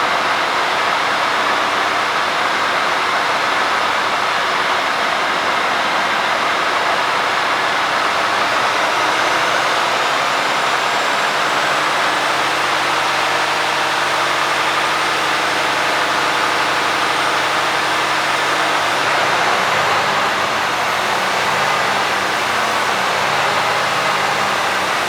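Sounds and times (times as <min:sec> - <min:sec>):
diesel truck engine idling: 0:05.3 - 0:25.0.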